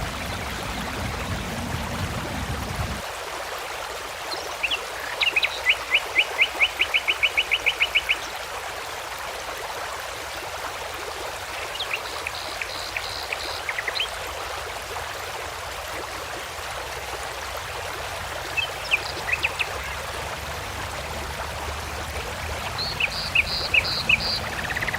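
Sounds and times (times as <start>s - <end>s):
songbirds singing: 11.7s - 14.1s, 22.6s - 24.9s.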